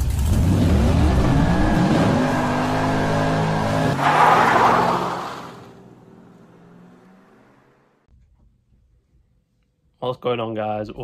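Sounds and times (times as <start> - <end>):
car engine accelerating: 0.0 - 8.1.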